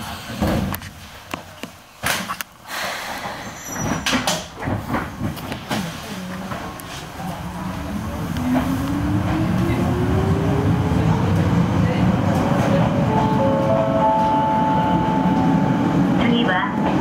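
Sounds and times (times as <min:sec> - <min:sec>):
train doors sliding shut: 0:02.0 - 0:09.8
electric train pulling away: 0:07.4 - 0:12.2.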